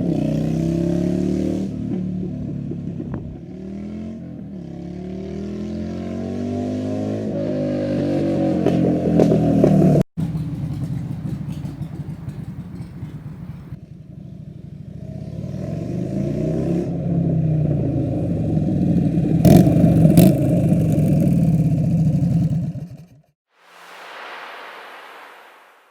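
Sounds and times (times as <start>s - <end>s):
motorcycle engine accelerating: 0.0s - 25.9s
loud exhaust cracks: 10.2s - 13.8s.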